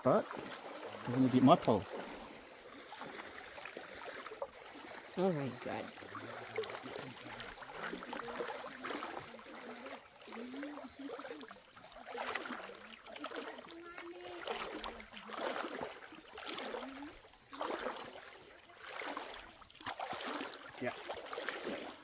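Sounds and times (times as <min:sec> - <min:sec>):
stream rushing: 0:00.0 - 0:22.0
water splashing around wading legs: 0:00.0 - 0:22.0.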